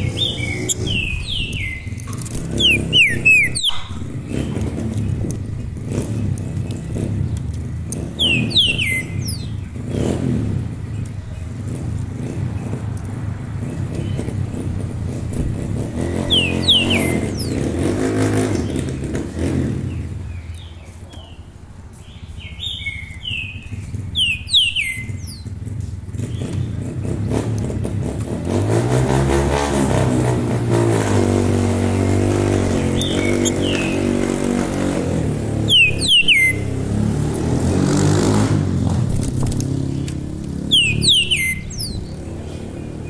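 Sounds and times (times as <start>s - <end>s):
songbird whistling: 0.0s - 4.6s, 8.0s - 10.2s, 16.0s - 17.8s, 22.3s - 25.6s, 31.8s - 34.3s, 35.5s - 37.1s, 39.9s - 43.0s
motorcycle engine passing: 0.0s - 20.4s, 21.6s - 43.0s.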